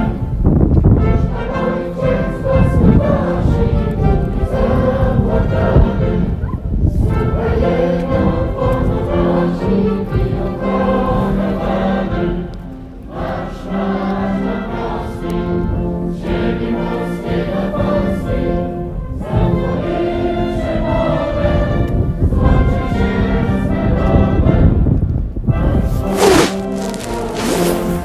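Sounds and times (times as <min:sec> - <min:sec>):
choir singing with instruments: 0:01.2 - 0:06.1, 0:07.1 - 0:12.5, 0:13.1 - 0:21.8.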